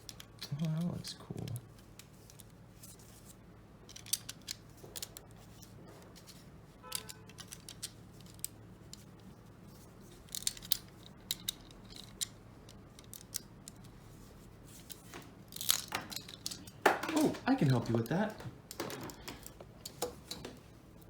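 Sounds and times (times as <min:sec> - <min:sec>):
plastic bricks clicking and clattering: 0:14.8 - 0:20.6.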